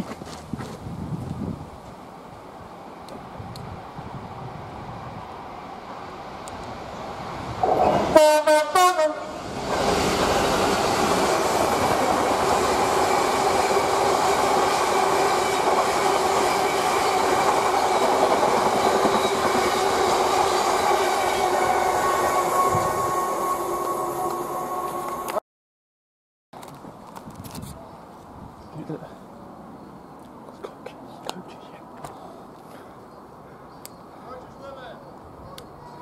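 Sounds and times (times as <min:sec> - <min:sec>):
train horn blasts: 0:07.6 - 0:09.4, 0:20.5 - 0:25.4.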